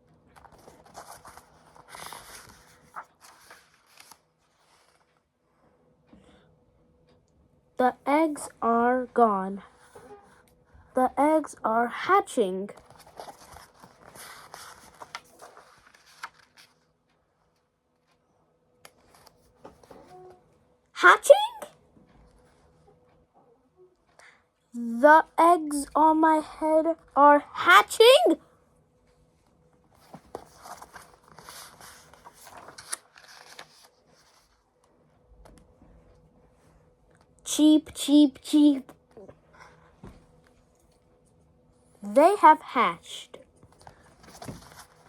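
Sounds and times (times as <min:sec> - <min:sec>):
paper pages rustling: 0:00.3 - 0:05.2, 0:12.7 - 0:18.2, 0:18.9 - 0:20.2, 0:29.9 - 0:34.8, 0:43.6 - 0:45.0.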